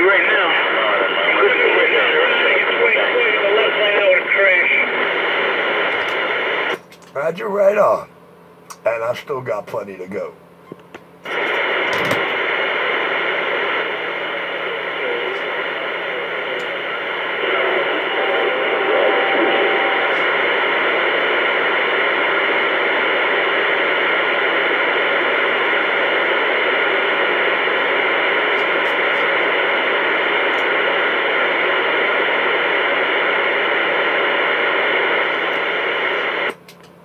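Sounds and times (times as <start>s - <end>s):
radio static hiss: 0.0s - 8.1s, 11.2s - 36.6s
faint murmur: 11.3s - 36.5s
faint tone: 14.7s - 21.4s.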